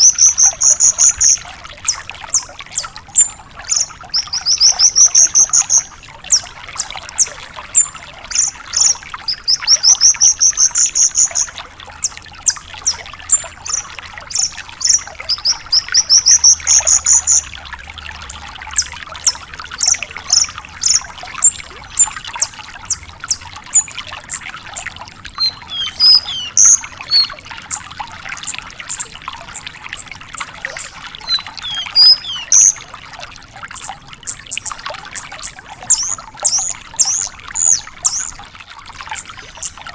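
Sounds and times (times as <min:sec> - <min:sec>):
lark singing: 0:02.8 - 0:06.4, 0:13.3 - 0:17.5, 0:25.4 - 0:27.4, 0:30.8 - 0:32.8.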